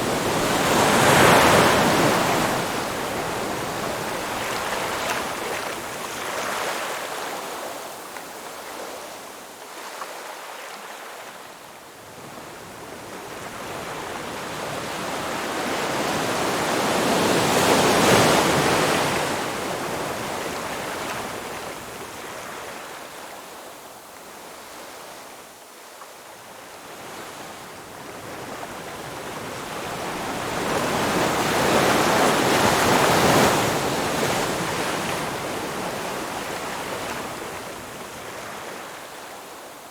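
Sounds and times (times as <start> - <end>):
waves breaking on shore: 0.0 - 7.7, 29.8 - 39.5.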